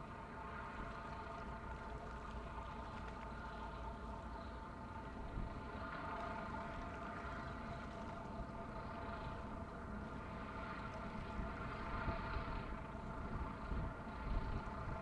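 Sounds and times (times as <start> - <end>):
wind rumble on microphone: 11.0 - 15.0.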